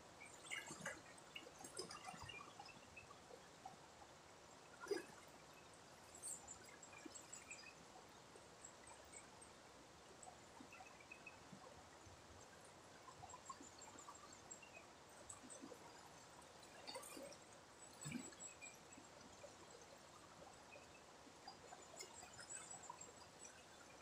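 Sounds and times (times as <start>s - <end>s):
river water trickling: 0.0s - 24.0s
water drips and splashes: 0.4s - 3.1s, 15.3s - 24.0s.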